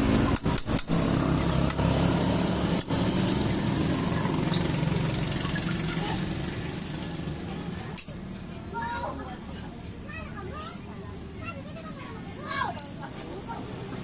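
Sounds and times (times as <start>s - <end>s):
motorcycle engine idling: 2.5s - 8.0s.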